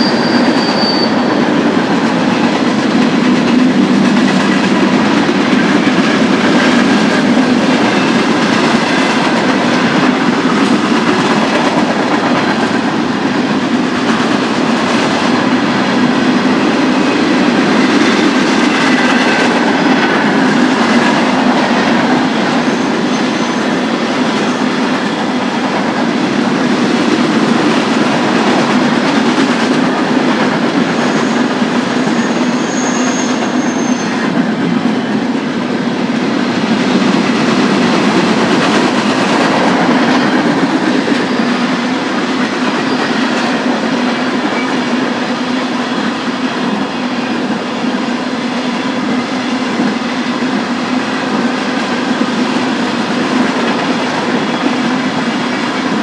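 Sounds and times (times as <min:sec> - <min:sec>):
high-pitched wheel squeals: 0:00.0 - 0:01.5, 0:31.0 - 0:34.3
train wheels rumbling on rail: 0:00.0 - 0:56.0.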